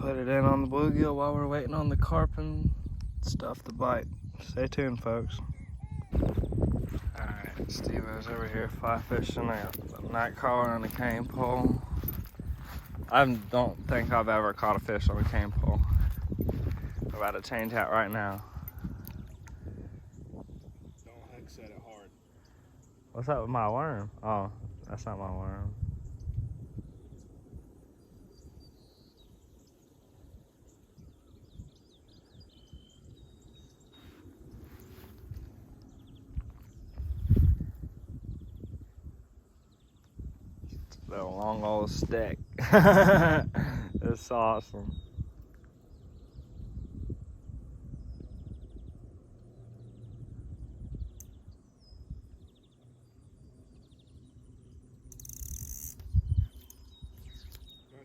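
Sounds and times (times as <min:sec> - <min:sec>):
low wind-like rumble: 0:00.0 - 0:58.0
small birds chirping: 0:00.0 - 0:58.0
insects pulsing: 0:53.2 - 0:57.7.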